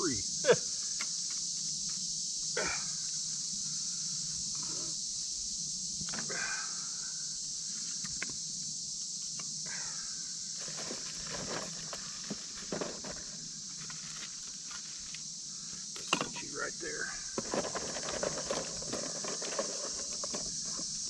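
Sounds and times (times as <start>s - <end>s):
crickets chirping: 0.0s - 21.0s
wood rustling and knocking: 10.6s - 15.2s, 16.0s - 16.4s, 17.3s - 21.0s.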